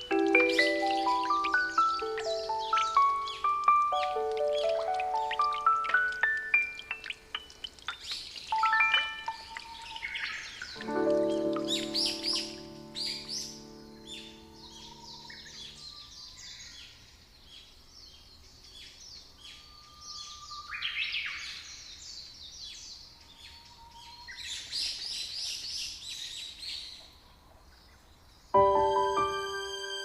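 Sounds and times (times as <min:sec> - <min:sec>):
held musical chord: 0:00.0 - 0:05.8, 0:10.8 - 0:15.8, 0:28.6 - 0:30.0
small birds chirping: 0:00.0 - 0:30.0.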